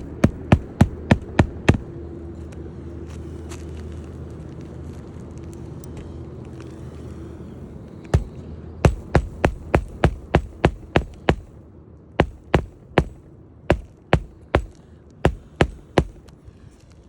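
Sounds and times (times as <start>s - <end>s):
hammer driving nails: 0.0s - 1.9s, 8.1s - 11.5s, 12.2s - 16.3s.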